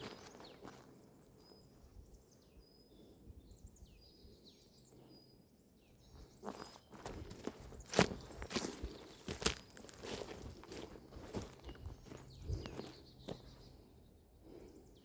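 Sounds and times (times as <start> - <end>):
footsteps on forest floor: 0.0 - 1.4, 6.2 - 13.8
small birds chirping: 0.0 - 15.0.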